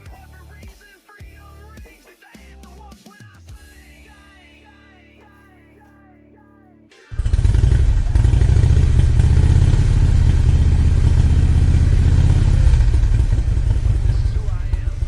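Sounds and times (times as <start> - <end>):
faint background music: 0.0 - 7.3, 13.1 - 15.0
power saw running: 7.1 - 15.0.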